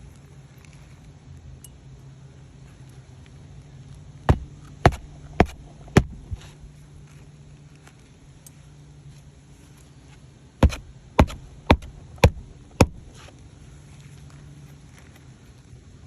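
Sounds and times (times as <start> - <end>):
sharp knocks: 4.3 - 6.3, 10.6 - 13.1.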